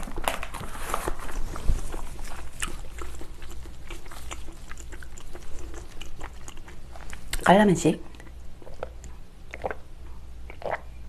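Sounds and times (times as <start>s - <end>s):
wet chewing and mouth smacks: 0.0s - 11.0s.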